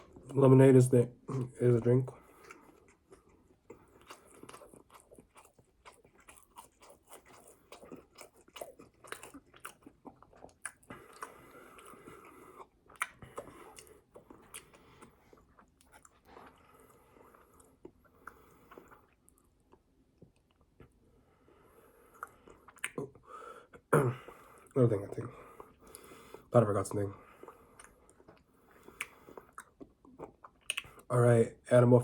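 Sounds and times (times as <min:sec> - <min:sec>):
person chewing food: 0:02.2 - 0:26.5, 0:27.2 - 0:31.1
wet mouth clicks: 0:12.9 - 0:14.8, 0:22.2 - 0:23.2, 0:27.4 - 0:31.1.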